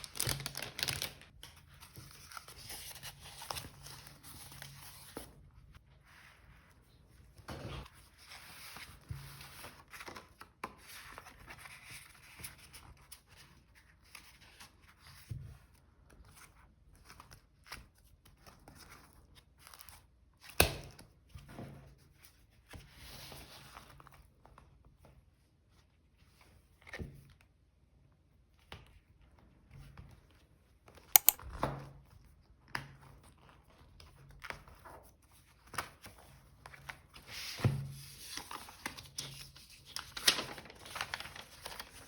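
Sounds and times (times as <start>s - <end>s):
paper rustling: 0.0s - 4.6s, 38.1s - 42.0s.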